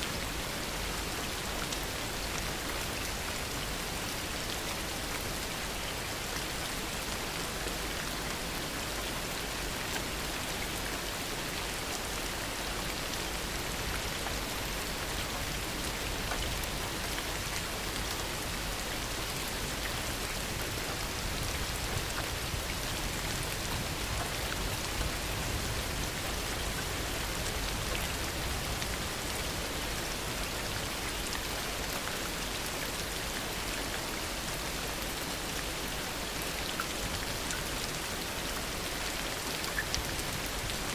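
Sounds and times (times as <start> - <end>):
faint raindrop ticks: 36.6 - 40.9.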